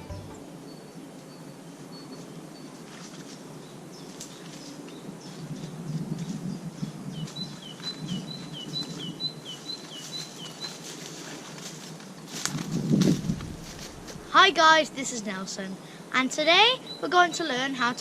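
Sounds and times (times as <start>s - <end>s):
low outdoor rumble: 12.5s - 16.0s.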